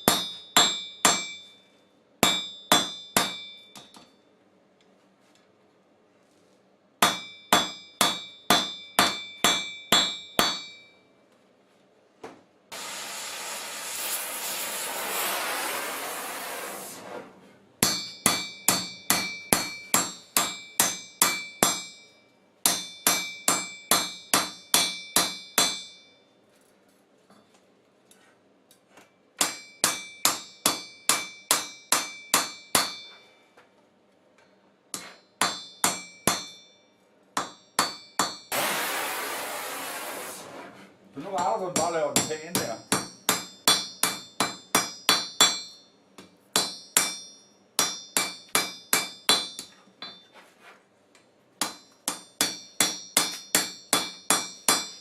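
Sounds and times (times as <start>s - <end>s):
hammer ringing on anvil: 0.0s - 4.3s, 7.0s - 11.1s, 17.8s - 26.3s, 29.4s - 33.4s, 35.0s - 38.5s, 41.7s - 46.0s, 46.6s - 50.3s, 51.6s - 55.0s
hissing rush: 12.7s - 17.4s, 38.5s - 40.8s.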